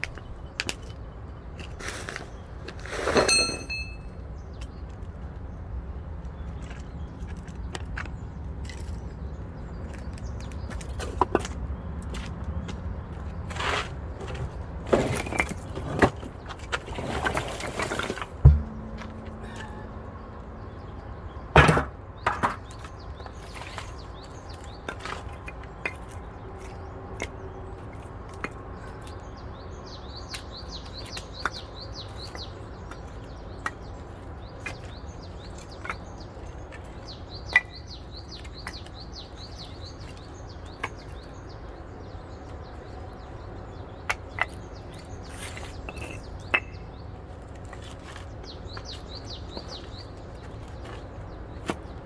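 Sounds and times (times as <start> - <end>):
log splitter hum: 18.4 - 21.4.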